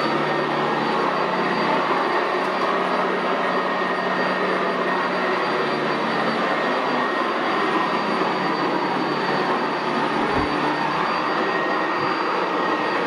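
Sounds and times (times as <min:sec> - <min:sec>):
vacuum cleaner running on carpet: 0:00.0 - 0:13.0.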